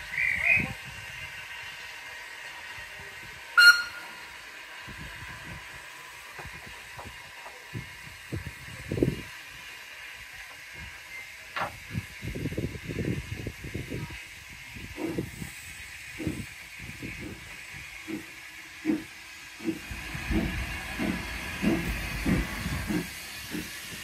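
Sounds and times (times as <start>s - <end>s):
train whistle: 3.6s - 4.3s.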